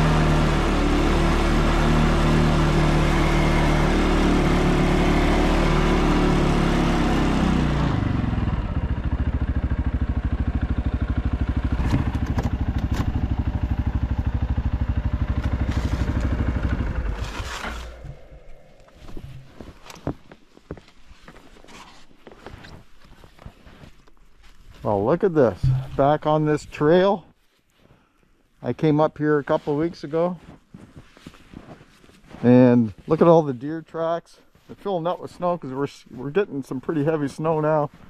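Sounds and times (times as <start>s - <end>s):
atv engine running: 0.0s - 20.2s, 25.4s - 26.2s.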